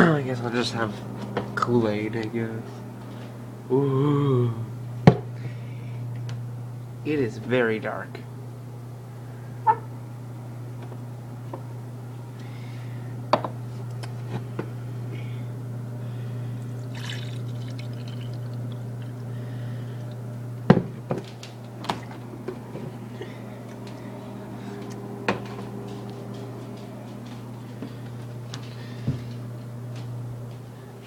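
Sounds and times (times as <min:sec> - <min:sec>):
low hum: 0:08.1 - 0:31.0
drink pouring into a cup: 0:16.6 - 0:19.3
container and cup clinking: 0:16.9 - 0:18.5.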